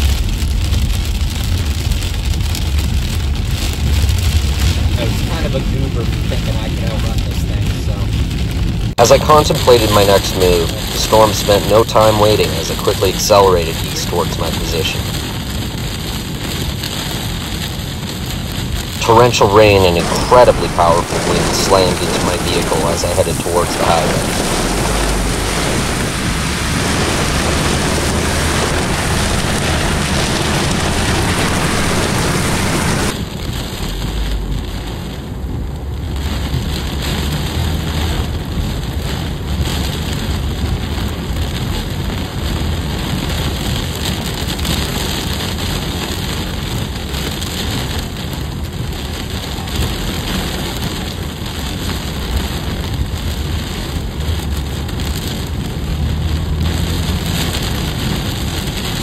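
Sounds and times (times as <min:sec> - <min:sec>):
low vehicle rumble: 0:00.0 - 0:15.2, 0:18.6 - 0:46.8
heavy rain pelting windshield: 0:00.0 - 0:59.0.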